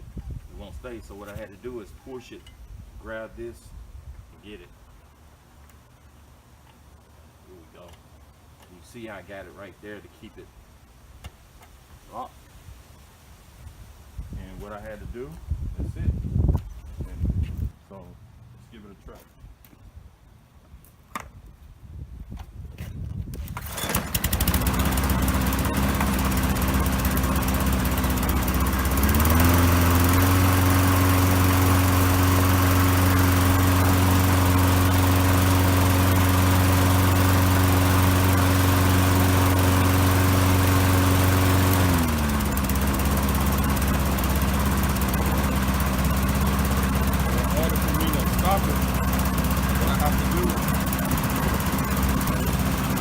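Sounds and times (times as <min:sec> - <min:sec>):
lawn mower engine running: 0:23.4 - 0:53.0.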